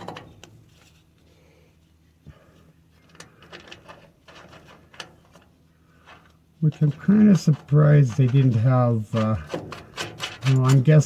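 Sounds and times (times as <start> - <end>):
bolts clicking and knocking: 0.0 - 0.6, 3.0 - 11.0.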